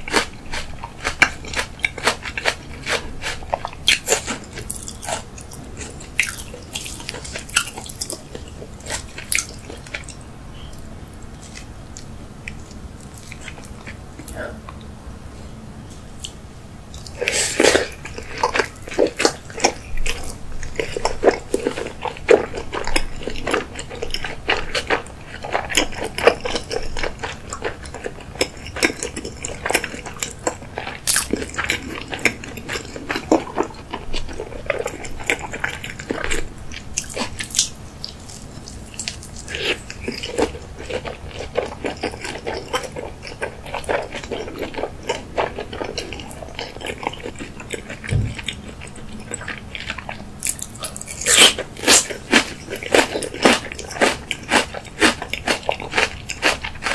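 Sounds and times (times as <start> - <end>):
close-up chewing: 0.0 - 14.9, 16.2 - 56.9.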